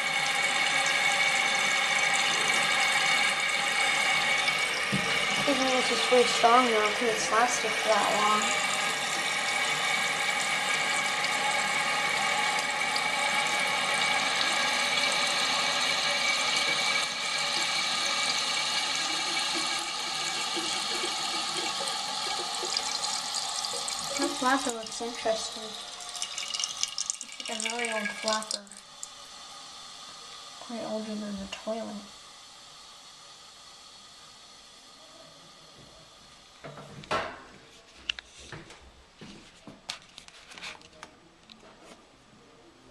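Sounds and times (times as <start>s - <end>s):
toilet refilling water rush: 0.0s - 36.6s
faint steady hiss: 19.1s - 37.0s.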